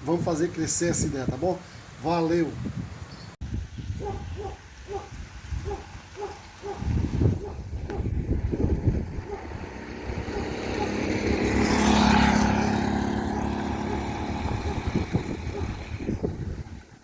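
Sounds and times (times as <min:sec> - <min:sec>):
vehicle driving past: 0:08.3 - 0:16.7.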